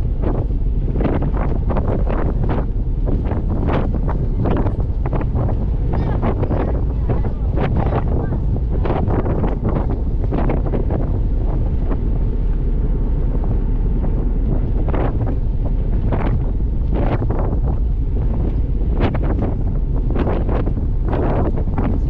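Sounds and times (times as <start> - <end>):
ferry engine rumble: 0.0 - 22.0
wind buffeting microphone: 0.0 - 22.0.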